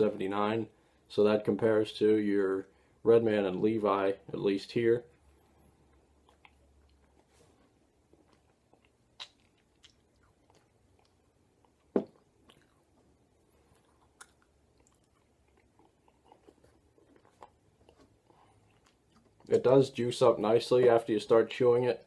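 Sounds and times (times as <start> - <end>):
wet mouth chewing smacks: 5.8 - 7.3, 8.1 - 19.6.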